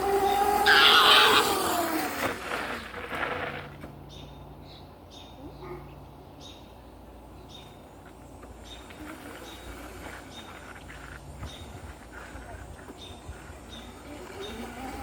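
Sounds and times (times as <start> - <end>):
birds chirping: 0.0 - 1.9, 4.0 - 15.0
electric motor whine: 0.0 - 2.9, 13.7 - 15.0.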